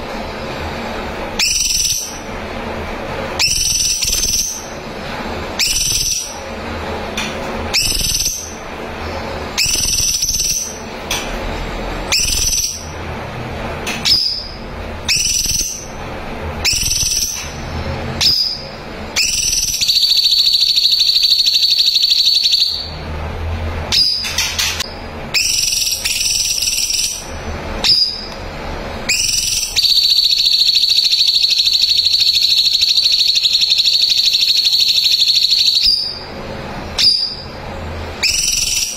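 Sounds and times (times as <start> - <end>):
songbird whistled calls and trills: 1.4 - 2.3, 3.4 - 4.8, 5.6 - 6.5, 7.7 - 11.2, 12.1 - 13.0, 13.8 - 16.0, 16.6 - 23.0, 23.9 - 28.4, 29.1 - 36.3, 36.9 - 37.6, 38.2 - 38.9.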